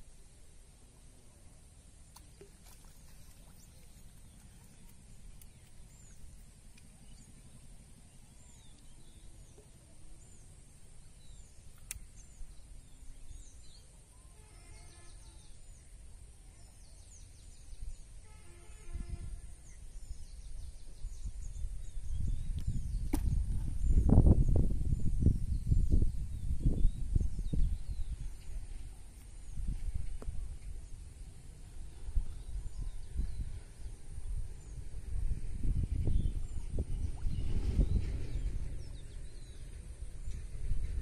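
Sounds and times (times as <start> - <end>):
small birds chirping: 2.1 - 14.3
wind rumble on microphone: 16.8 - 41.0.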